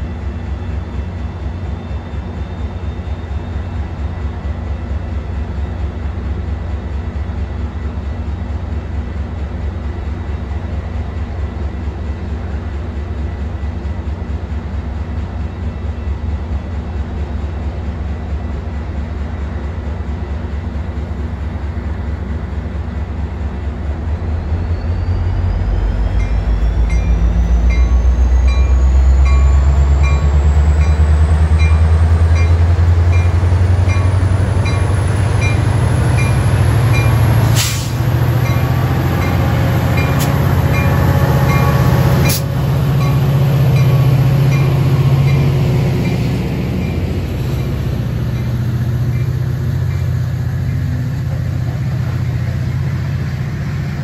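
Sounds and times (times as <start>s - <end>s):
locomotive engine rumble: 0.0s - 54.0s
high whine rising in pitch: 24.2s - 37.4s.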